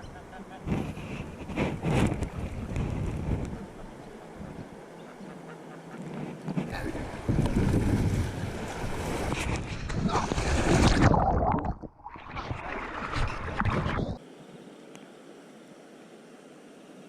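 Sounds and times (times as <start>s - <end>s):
wind noise: 0.0s - 4.8s, 6.0s - 14.2s
water rushing: 0.0s - 17.0s.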